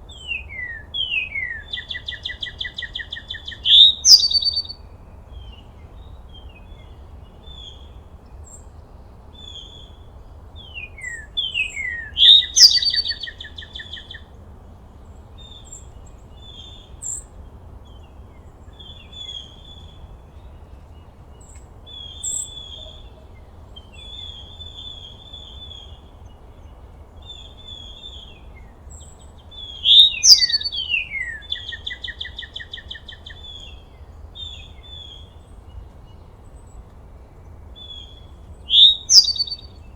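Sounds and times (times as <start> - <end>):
faint low background noise: 0.0 - 39.9
bird song with whistles and trill: 0.1 - 8.8, 9.4 - 14.3, 17.9 - 36.8, 37.8 - 39.9
soft bird chirps: 0.1 - 8.8, 9.4 - 14.3, 18.7 - 36.8, 37.7 - 39.9.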